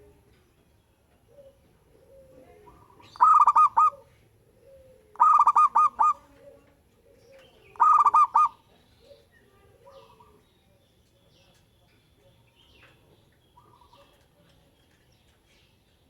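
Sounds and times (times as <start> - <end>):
dove singing ringing notes: 1.3 - 4.0, 4.6 - 9.3
low cooing: 1.4 - 6.6, 7.8 - 8.5.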